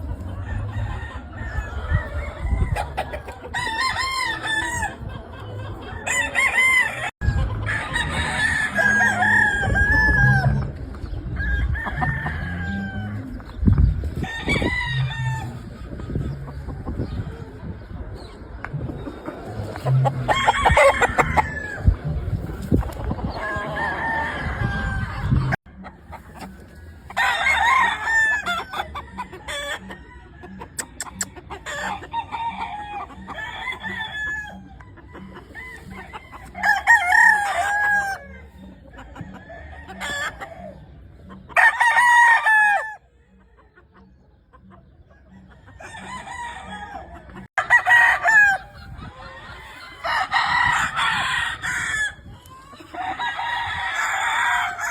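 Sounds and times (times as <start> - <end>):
roosters crowing: 0.0 - 17.4, 19.1 - 43.5, 45.0 - 54.9
chicken clucking: 0.0 - 54.9.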